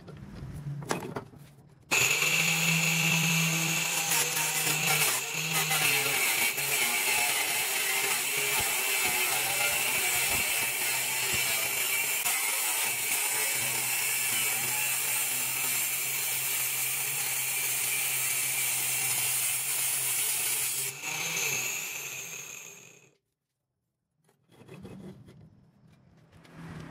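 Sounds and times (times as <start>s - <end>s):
circular saw whining: 1.9s - 23.1s.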